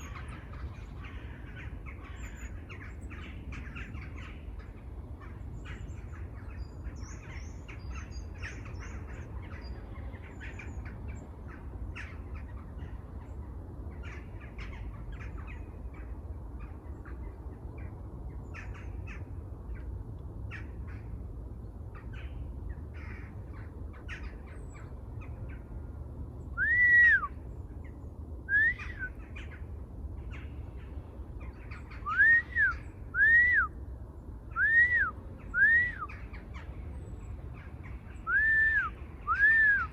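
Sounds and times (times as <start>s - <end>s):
chorus of birds chirping: 0.0s - 39.9s
bird whistling arched notes: 26.6s - 27.3s, 28.5s - 29.1s, 32.0s - 33.7s, 34.6s - 36.1s, 38.2s - 39.9s.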